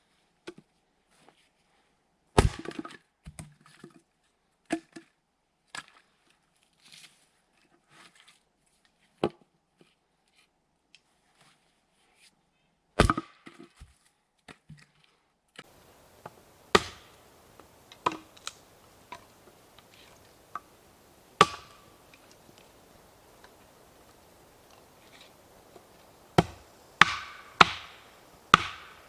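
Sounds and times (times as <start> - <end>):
axe chopping wood: 15.7 - 29.0
light knocks on wood: 15.7 - 29.0.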